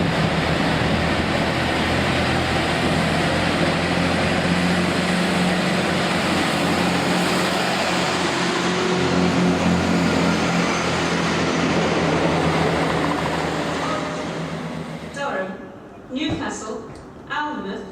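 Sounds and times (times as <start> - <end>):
diesel train engine idling: 0.0 - 16.1.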